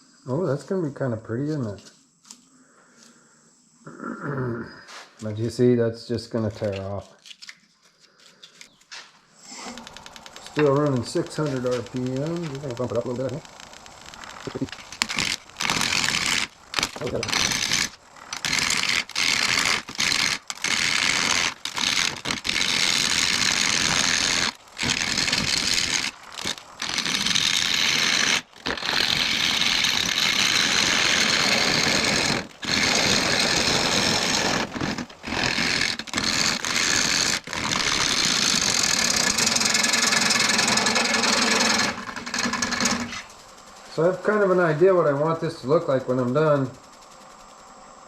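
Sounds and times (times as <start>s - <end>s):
lathe tool cutting wood: 9.5s - 43.3s.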